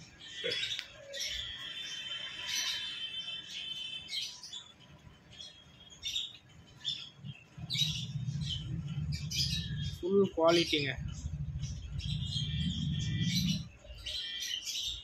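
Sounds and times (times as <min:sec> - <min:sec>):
cage birds chirping and twittering: 0:00.0 - 0:15.0.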